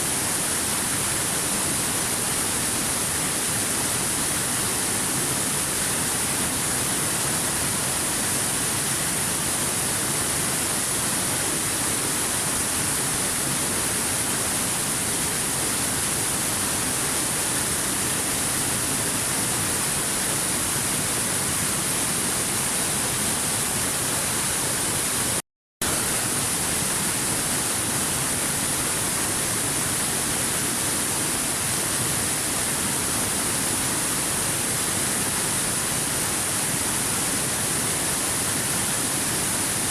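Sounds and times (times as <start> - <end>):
waterfall rushing: 10.5 - 39.9.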